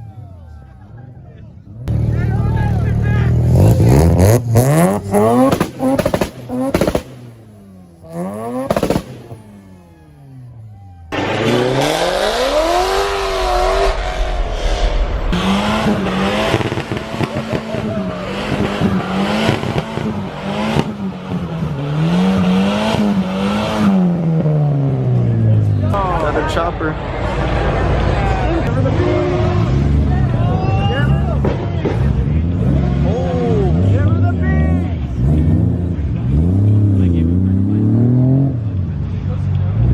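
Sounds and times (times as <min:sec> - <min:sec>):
car engines revving: 0:00.0 - 0:39.9
exhaust pops: 0:05.1 - 0:07.5, 0:08.6 - 0:09.5.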